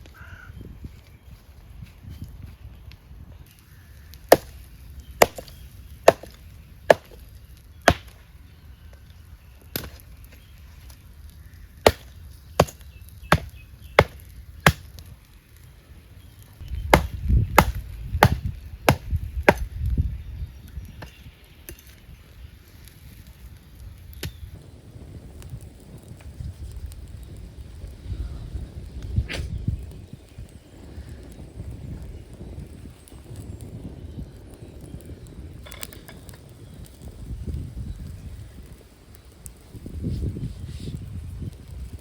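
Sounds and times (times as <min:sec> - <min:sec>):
blade chopping: 0:04.3 - 0:04.6, 0:05.2 - 0:07.2, 0:07.9 - 0:08.2, 0:11.9 - 0:15.0, 0:16.9 - 0:19.7.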